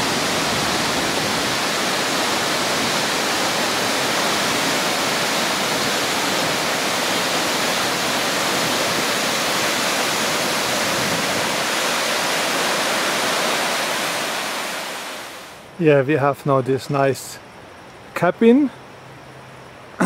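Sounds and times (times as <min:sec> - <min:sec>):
waterfall rushing: 0:00.0 - 0:15.6.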